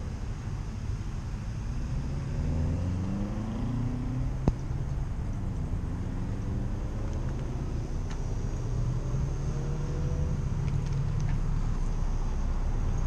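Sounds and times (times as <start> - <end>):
vehicle engine speeding up: 1.6 - 11.6.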